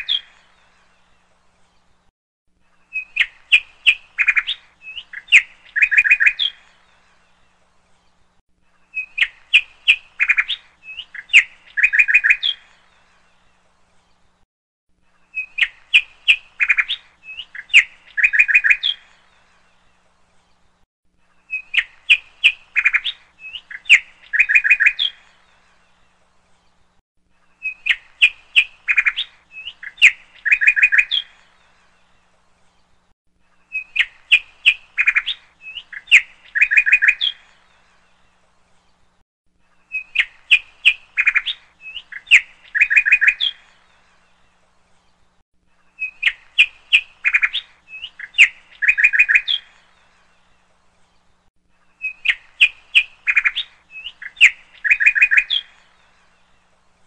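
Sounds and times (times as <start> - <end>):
high bird chirps: 2.8 - 6.8, 8.8 - 13.0, 15.2 - 19.4, 21.4 - 25.5, 27.6 - 31.6, 33.6 - 37.8, 39.8 - 44.1, 45.9 - 50.0, 51.9 - 56.2.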